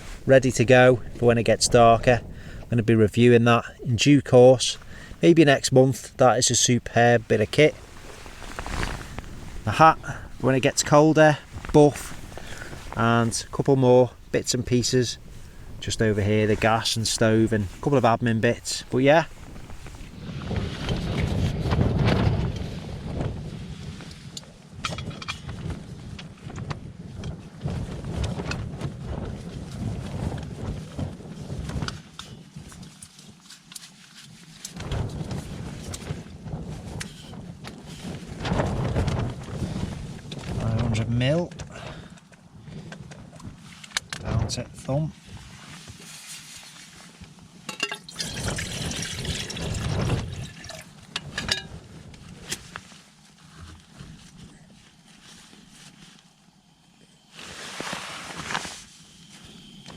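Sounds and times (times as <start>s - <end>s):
low wind rumble: 0.0s - 32.8s, 34.8s - 45.5s, 48.1s - 59.9s
tent fabric flapping and snapping: 7.3s - 14.3s, 15.3s - 41.0s, 48.2s - 56.4s, 57.3s - 59.0s
pouch crinkling and clicking: 8.0s - 9.7s
hot water pouring into pouch: 48.0s - 51.0s.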